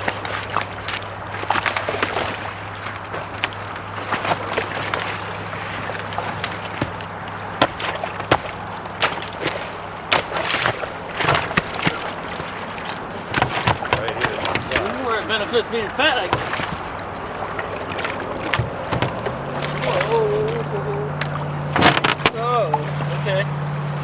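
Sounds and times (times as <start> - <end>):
steady low hum: 0.0 - 24.0
water splashing around canoe: 0.0 - 24.0
knocks and clatters: 13.3 - 15.0, 16.2 - 17.0, 17.9 - 19.9, 21.2 - 22.4.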